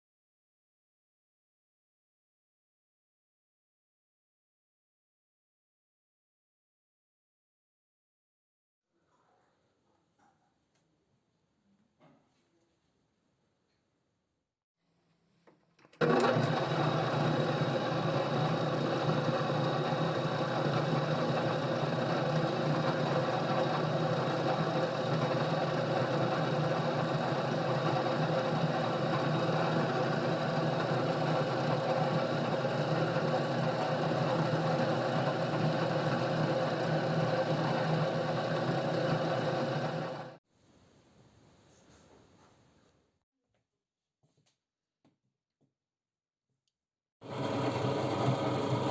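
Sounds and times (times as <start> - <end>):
power tool motor whining: 16.0 - 40.4.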